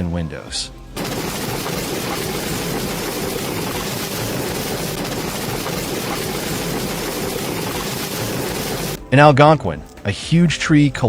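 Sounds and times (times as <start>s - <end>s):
rushing storm noise: 1.0s - 9.0s.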